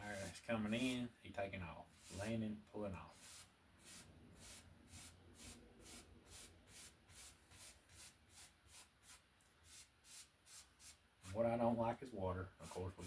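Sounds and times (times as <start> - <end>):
brush swishing on wet canvas: 2.0 - 2.4.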